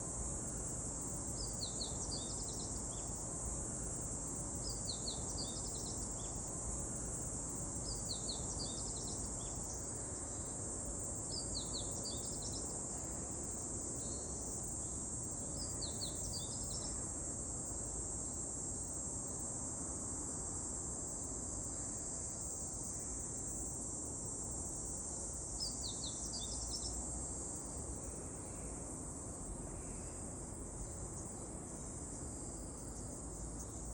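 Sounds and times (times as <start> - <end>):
songbird chirping song: 1.2 - 3.2, 4.5 - 6.5, 7.2 - 10.5, 11.2 - 12.8, 14.0 - 17.0, 25.6 - 27.0.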